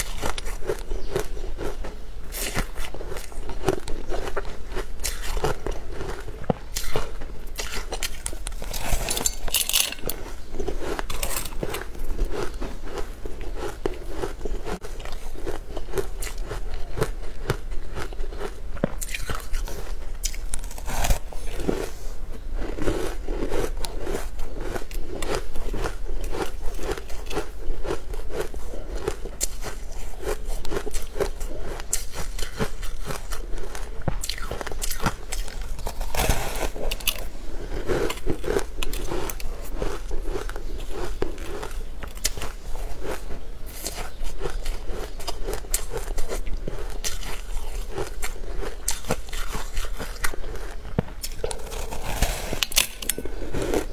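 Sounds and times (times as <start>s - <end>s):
person chewing crunchy food: 0.0s - 53.9s.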